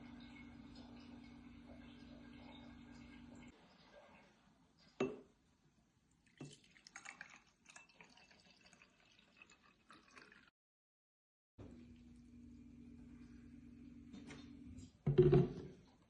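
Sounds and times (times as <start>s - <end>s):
faint dripping liquid: 6.1s - 10.5s.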